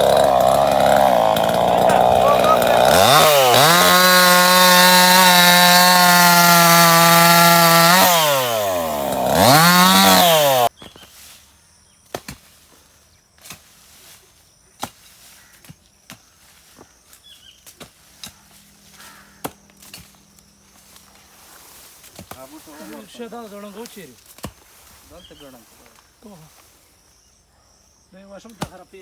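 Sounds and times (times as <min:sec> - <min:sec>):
small engine revving: 0:00.0 - 0:10.7.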